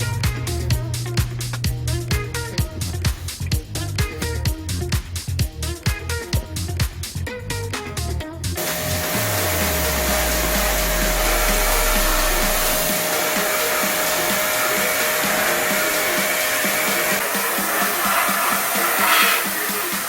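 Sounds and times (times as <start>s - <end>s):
beat-driven music: 0.0s - 20.0s
pressure washer spraying hiss: 8.6s - 20.0s.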